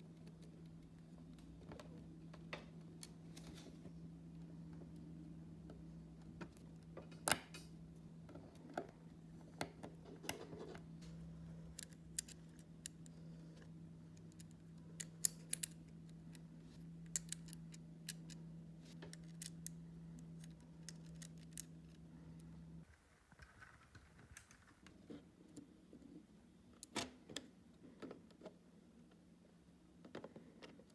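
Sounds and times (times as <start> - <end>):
steady low hum: 0.0 - 23.4
plastic parts clicking and snapping: 11.6 - 13.1, 14.2 - 22.0.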